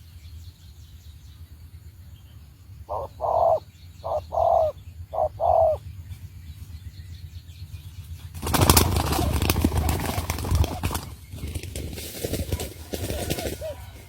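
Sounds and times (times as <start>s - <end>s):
dove cooing: 2.9s - 5.8s, 12.5s - 14.0s
dove wings flapping: 8.3s - 14.0s.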